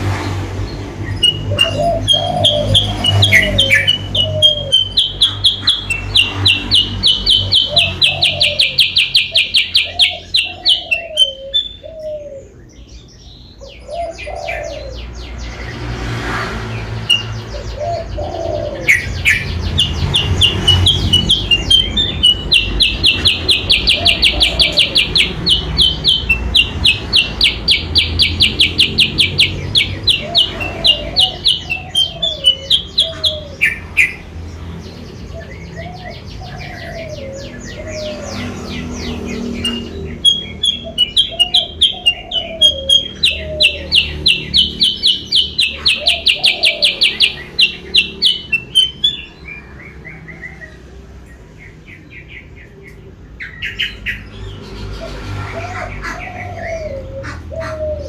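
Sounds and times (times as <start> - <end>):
lower curved bird call: 1.1 - 12.6, 17.1 - 34.2, 35.3 - 50.8.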